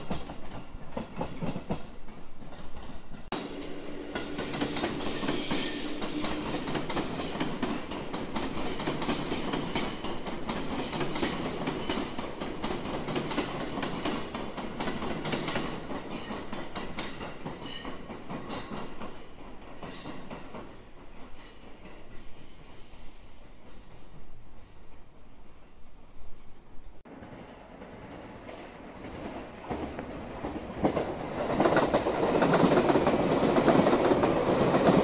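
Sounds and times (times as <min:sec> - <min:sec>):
train wheels clicking over rail joints: 0:00.0 - 0:25.1, 0:27.2 - 0:35.0
train wheel squeal: 0:03.4 - 0:12.4, 0:13.2 - 0:14.5, 0:15.3 - 0:24.2.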